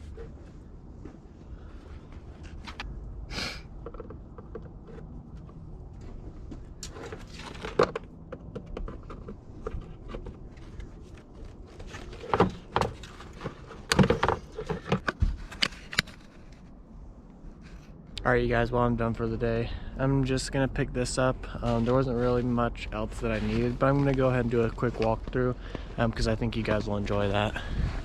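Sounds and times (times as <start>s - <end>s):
low steady rumble: 0.0s - 28.0s
tools and parts rattling: 6.7s - 16.7s.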